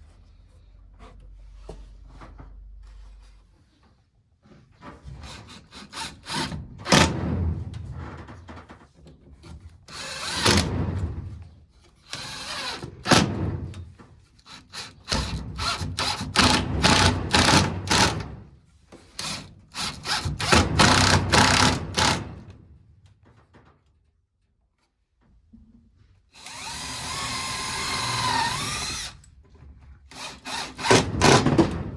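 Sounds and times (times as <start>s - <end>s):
power drill running: 9.9s - 10.7s, 12.0s - 13.3s, 14.4s - 18.3s, 19.1s - 22.3s, 26.3s - 29.2s, 30.1s - 31.6s.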